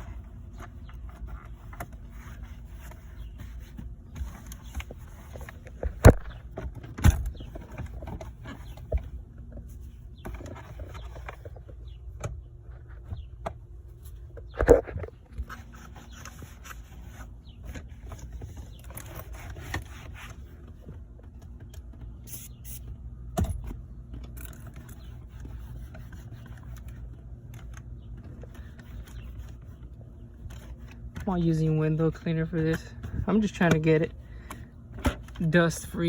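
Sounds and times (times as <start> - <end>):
rag rubbing and scraping: 14.5 - 20.6.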